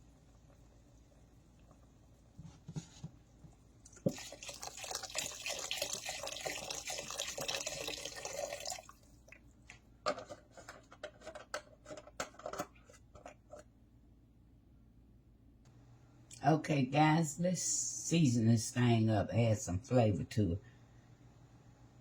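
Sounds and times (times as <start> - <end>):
broth pouring into a pot: 0.0 - 9.6.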